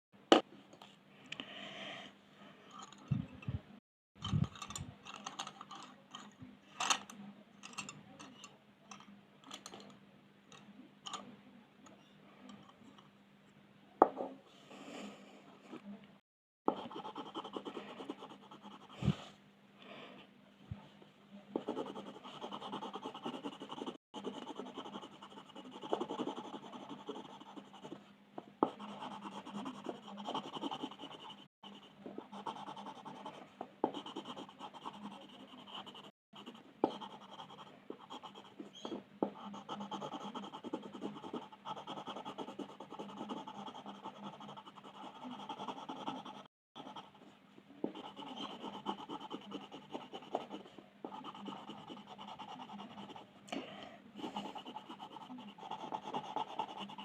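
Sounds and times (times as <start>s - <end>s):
pencil scratching on paper: 16.7s - 19.3s, 21.6s - 28.0s, 28.6s - 53.3s, 54.2s - 57.0s.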